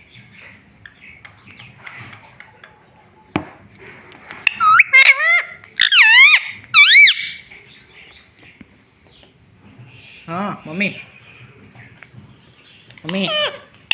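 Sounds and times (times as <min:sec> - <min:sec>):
parakeet shrill calls: 0:04.5 - 0:07.4, 0:13.1 - 0:13.9.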